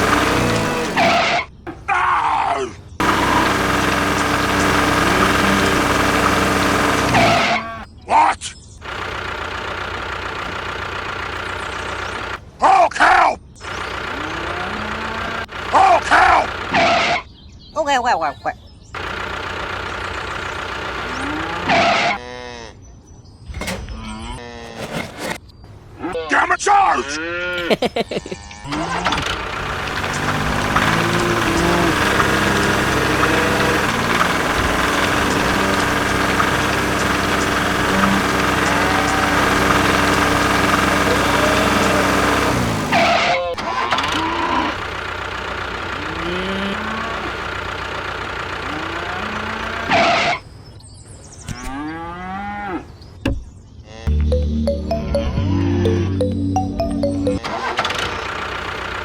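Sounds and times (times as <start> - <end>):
loud burst of noise: 0.0 - 1.2, 3.0 - 7.9, 28.7 - 44.0
engine running: 0.0 - 1.4, 3.0 - 7.9, 8.8 - 12.6, 13.6 - 16.9, 19.0 - 22.1, 28.6 - 50.1, 54.1 - 59.0
cattle mooing: 7.1 - 7.9, 14.1 - 15.5, 21.1 - 22.8, 24.0 - 24.8, 28.4 - 42.0, 46.0 - 47.3, 48.6 - 50.3, 51.5 - 52.8, 53.8 - 54.2.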